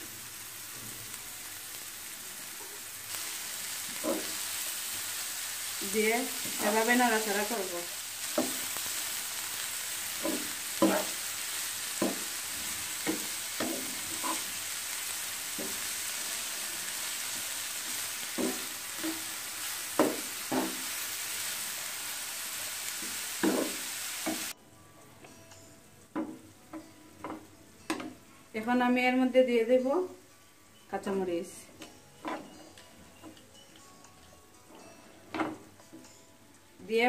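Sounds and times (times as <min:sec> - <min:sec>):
vegetables sizzling in oil: 0:00.0 - 0:24.6
spatula scraping a pan: 0:12.0 - 0:14.6.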